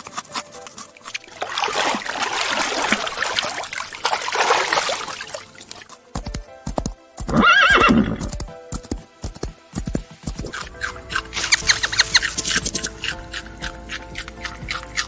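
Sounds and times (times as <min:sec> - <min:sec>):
horse whinnying: 0:07.2 - 0:08.3
sharp rhythmic knocks: 0:08.2 - 0:15.0.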